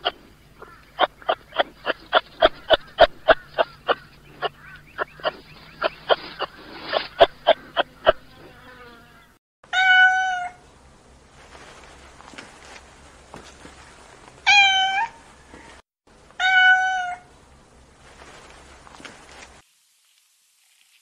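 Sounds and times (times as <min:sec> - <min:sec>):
short sharp animal calls: 0:00.0 - 0:08.5
cat meowing: 0:09.8 - 0:10.6, 0:14.5 - 0:15.2, 0:16.4 - 0:17.3.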